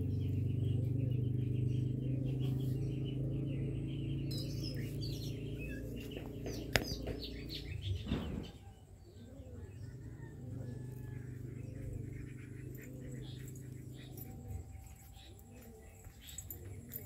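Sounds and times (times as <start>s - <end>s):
small birds chirping: 0.0s - 17.0s
steady low hum: 9.5s - 17.0s.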